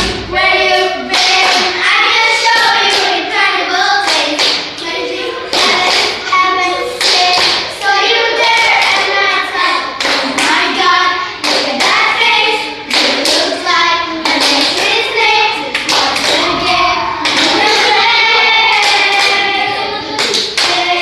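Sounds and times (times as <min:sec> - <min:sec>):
children singing together: 0:00.0 - 0:21.0
hand claps: 0:01.1 - 0:01.8, 0:05.5 - 0:06.2, 0:07.0 - 0:07.8, 0:20.2 - 0:20.9.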